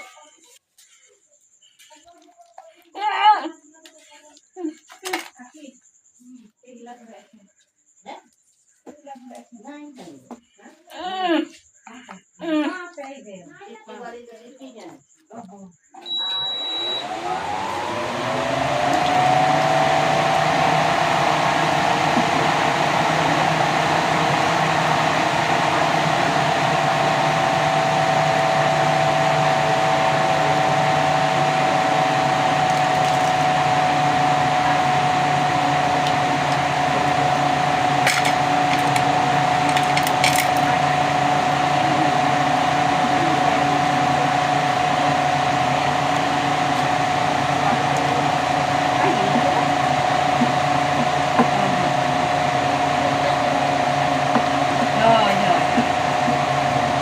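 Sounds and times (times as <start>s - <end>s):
small electric motor whining: 16.1s - 57.0s.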